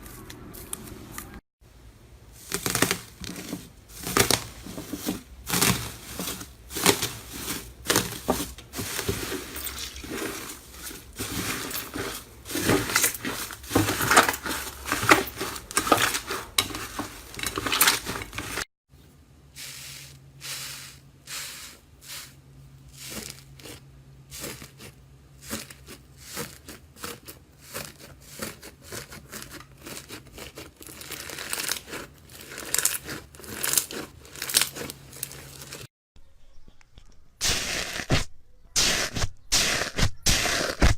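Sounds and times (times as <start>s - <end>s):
slime crackling and crunching: 2.4s - 18.7s, 23.0s - 35.9s.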